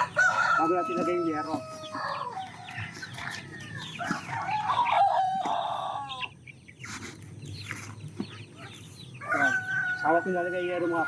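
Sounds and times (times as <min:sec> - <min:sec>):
rooster crowing: 0:00.0 - 0:06.2, 0:09.2 - 0:11.0
chickens clucking: 0:00.0 - 0:11.0.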